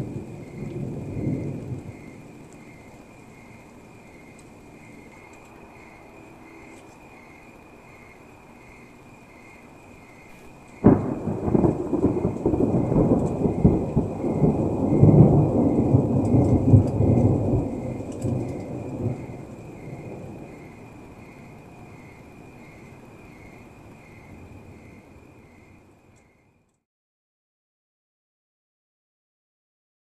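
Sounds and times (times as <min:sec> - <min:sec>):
thunder crack and rumble: 0:00.0 - 0:06.0, 0:10.7 - 0:25.8.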